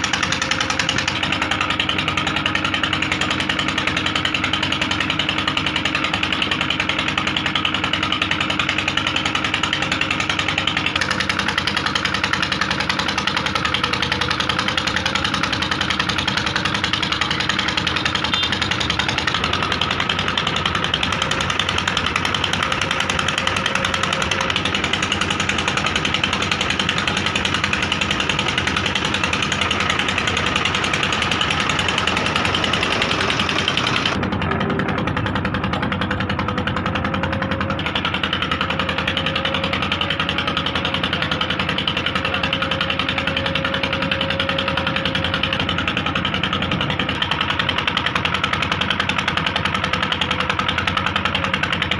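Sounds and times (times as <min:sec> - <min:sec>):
diesel engine clattering: 0:00.0 - 0:51.9.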